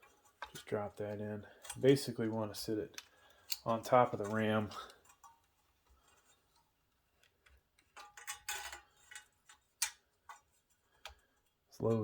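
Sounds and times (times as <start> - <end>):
small clicks and rattles: 0.0 - 11.3.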